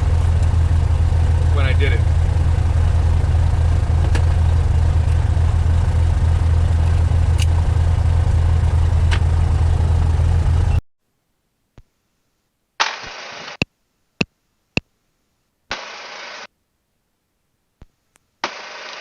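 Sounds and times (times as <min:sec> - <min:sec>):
aircraft engine droning: 0:00.0 - 0:10.8.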